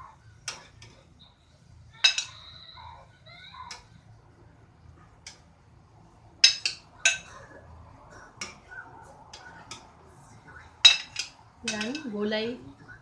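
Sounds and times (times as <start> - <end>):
utensils clinking against dishes: 2.0 - 2.4, 6.4 - 7.5, 10.8 - 12.4.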